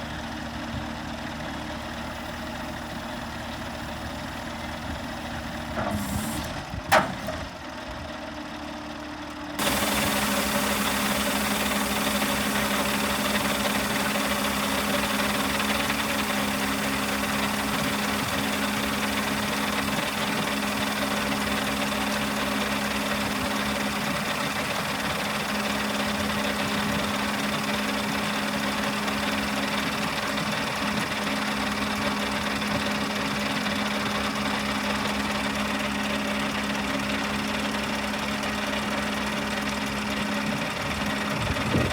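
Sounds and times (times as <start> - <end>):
machine humming: 9.6 - 23.3.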